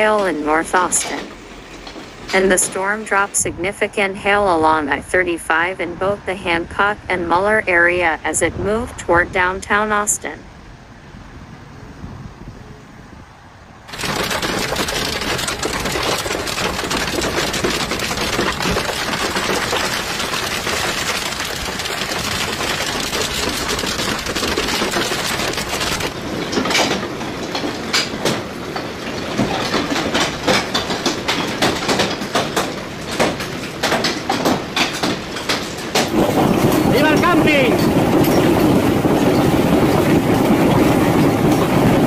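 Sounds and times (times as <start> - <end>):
hailstones pounding: 13.9 - 42.0.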